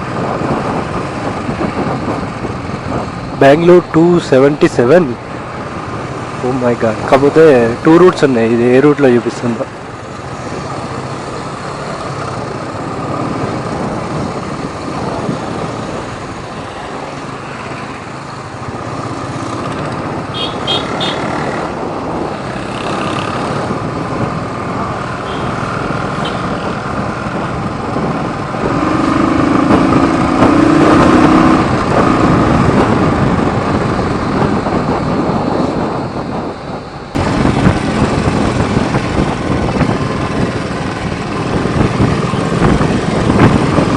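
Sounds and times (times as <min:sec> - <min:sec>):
passing vehicles: 0:00.0 - 0:43.9
wind and road noise: 0:00.0 - 0:43.9
motorcycle engine: 0:09.7 - 0:36.0, 0:37.1 - 0:43.9
horn toots: 0:20.3 - 0:21.3.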